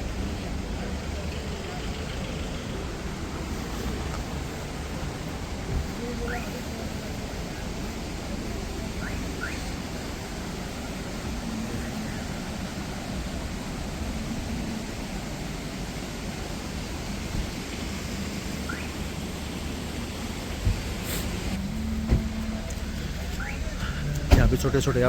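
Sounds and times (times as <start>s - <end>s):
waterfall rushing: 0.0s - 25.0s
faint rising chirps: 18.6s - 19.2s, 21.6s - 25.0s.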